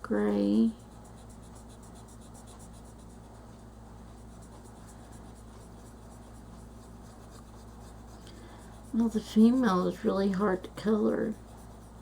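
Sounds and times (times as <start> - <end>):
colouring tool scratching paper: 0.4 - 12.0.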